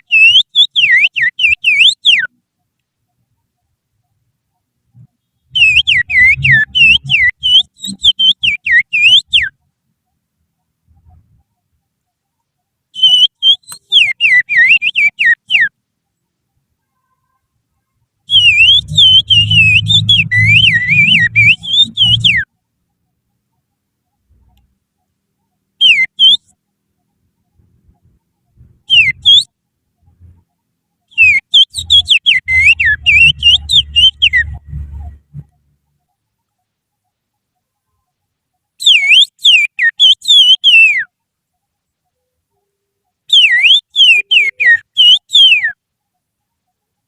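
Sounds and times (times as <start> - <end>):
finger whistling bird song: 0.0 - 2.4, 5.0 - 9.6, 13.0 - 15.7, 18.3 - 22.5, 25.8 - 26.6, 28.9 - 29.5, 31.1 - 35.5, 38.8 - 41.1, 43.3 - 45.8.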